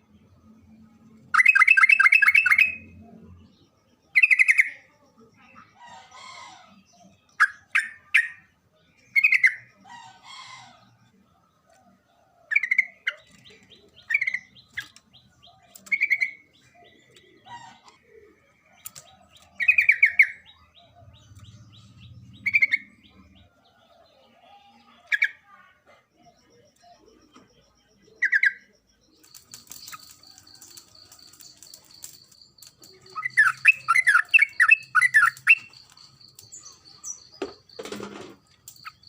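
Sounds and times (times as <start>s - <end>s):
bird calling chirpy phrases: 1.3s - 3.2s, 4.1s - 37.9s.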